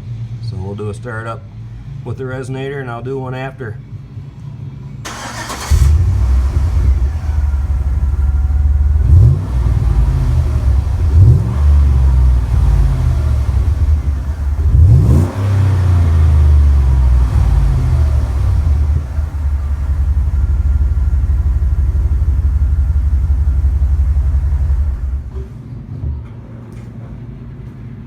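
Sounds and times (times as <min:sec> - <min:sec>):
engine cranking: 0:05.1 - 0:25.5
engine idling and revving: 0:05.1 - 0:25.5.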